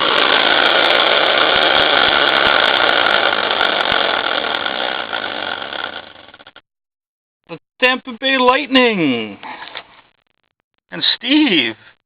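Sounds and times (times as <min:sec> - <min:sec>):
prize wheel spinning: 0:00.0 - 0:06.6.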